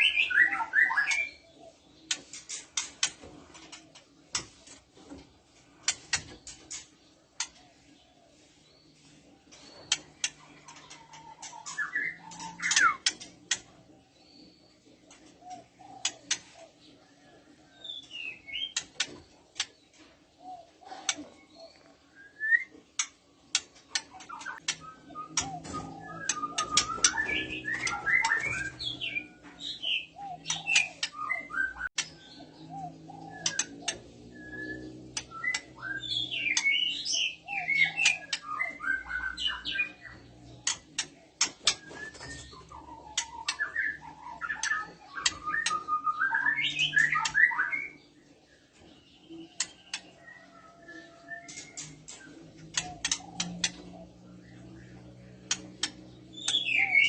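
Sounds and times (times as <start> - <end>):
bird clicking and whistling: 11.4 - 13.7, 22.4 - 32.2, 33.3 - 39.9, 40.6 - 47.9, 51.4 - 53.9, 55.4 - 57.0.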